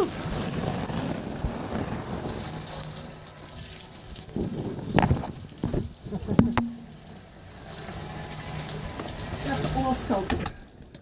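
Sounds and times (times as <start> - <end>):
heavy rain pouring: 0.0 - 11.0
sharp knocks: 6.4 - 6.9.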